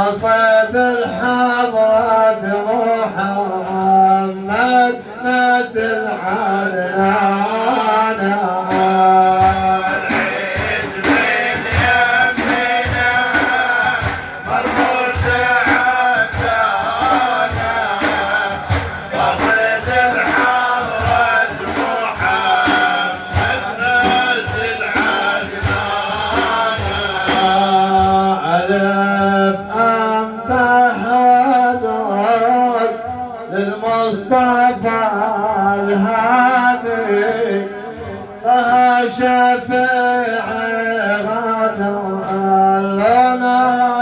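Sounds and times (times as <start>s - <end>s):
men singing devotional song: 0.0s - 44.0s
steady drum beat: 0.1s - 32.2s.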